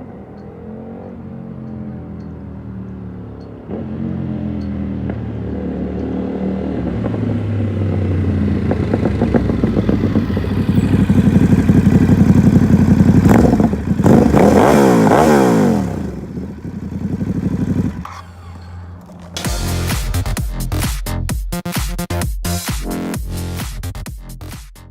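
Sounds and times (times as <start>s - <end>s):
motorcycle engine revving: 0.0s - 20.8s
exhaust crack: 4.6s - 20.9s.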